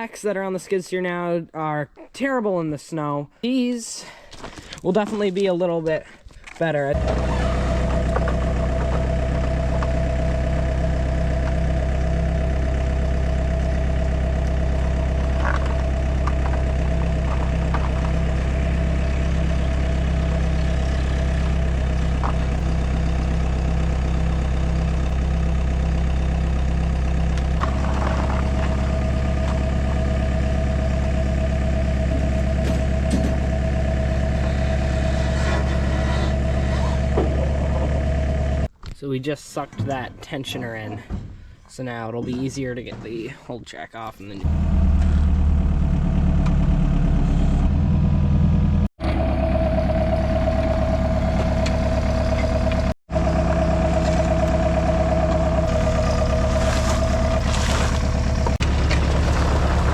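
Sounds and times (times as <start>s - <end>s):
skid steer engine running: 6.9s - 38.7s, 44.4s - 59.9s.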